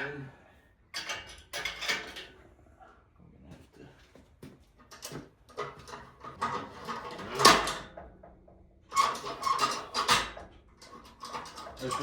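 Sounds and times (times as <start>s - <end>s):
metal creaks and scrapes: 8.9s - 12.0s.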